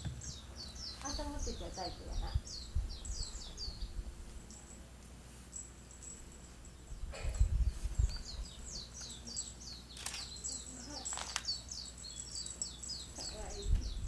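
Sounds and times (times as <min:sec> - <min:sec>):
sharp clicks: 0:10.0 - 0:10.4.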